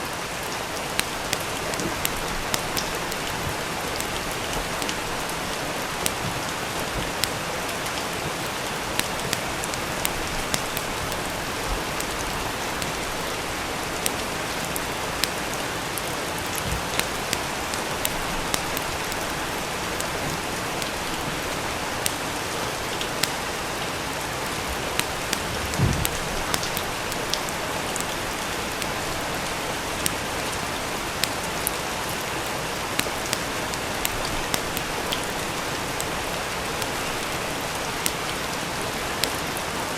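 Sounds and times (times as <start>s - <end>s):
steady rain: 0.0s - 39.9s
wood fire crackling: 0.1s - 39.9s
soft low thump: 25.5s - 26.4s.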